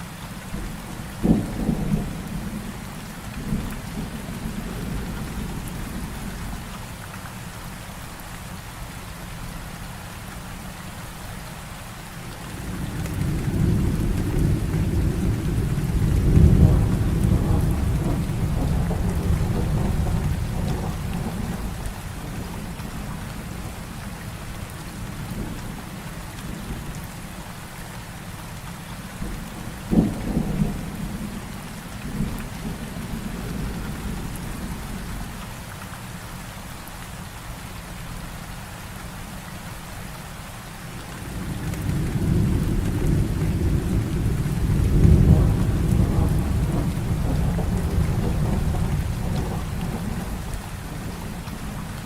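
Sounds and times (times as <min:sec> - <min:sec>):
heavy rain falling: 0:00.0 - 0:52.0
low thunder rumble: 0:00.6 - 0:02.8, 0:12.4 - 0:26.8, 0:29.2 - 0:35.1, 0:41.2 - 0:52.0
thunder crack: 0:12.5 - 0:22.5, 0:41.4 - 0:51.1.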